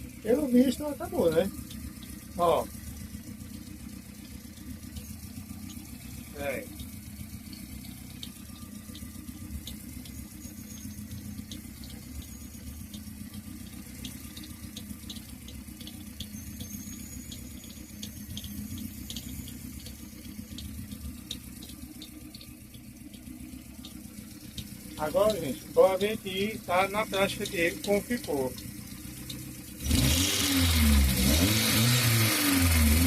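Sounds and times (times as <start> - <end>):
car engine idling: 0.0 - 33.0
faint light ticks: 1.5 - 2.3, 2.9 - 6.1, 6.7 - 29.8.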